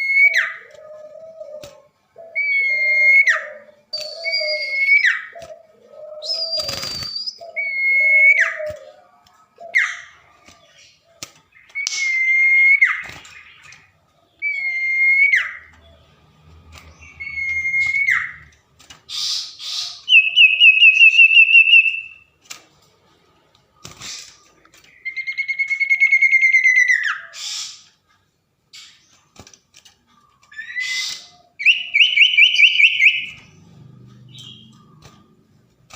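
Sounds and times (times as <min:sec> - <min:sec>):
bird whistling and trilling: 0:00.0 - 0:00.6, 0:02.4 - 0:05.4, 0:06.2 - 0:08.7, 0:11.6 - 0:13.7, 0:14.4 - 0:15.7, 0:16.9 - 0:18.5, 0:19.1 - 0:22.2, 0:24.9 - 0:27.8, 0:30.5 - 0:33.5.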